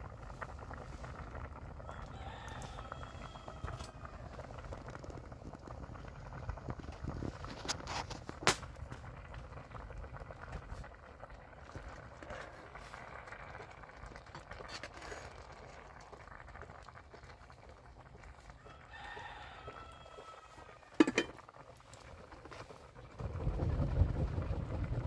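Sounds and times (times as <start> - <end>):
rooster crowing: 1.8 - 4.6, 18.6 - 21.3.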